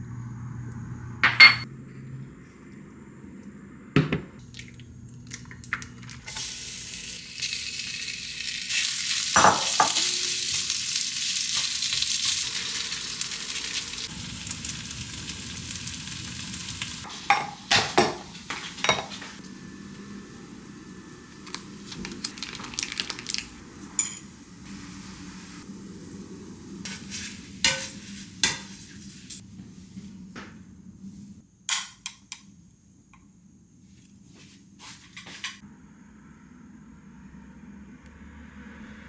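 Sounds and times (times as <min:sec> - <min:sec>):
food sizzling in a pan: 0:06.2 - 0:29.4.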